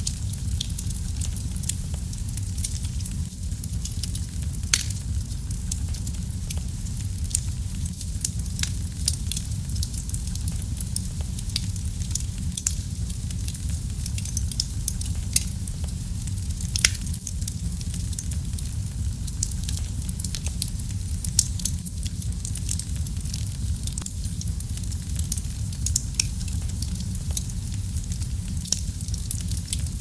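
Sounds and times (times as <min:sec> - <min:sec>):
fire crackling and popping: 0:00.0 - 0:30.0
low rumble of flame: 0:00.0 - 0:30.0.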